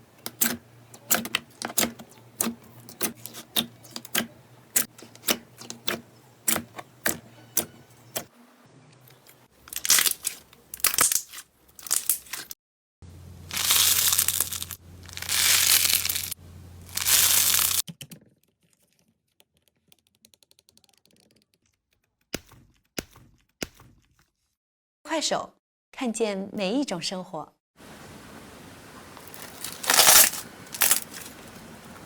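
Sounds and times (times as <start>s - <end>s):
slime crackling when squeezed: 9.7s - 12.5s, 13.5s - 17.8s.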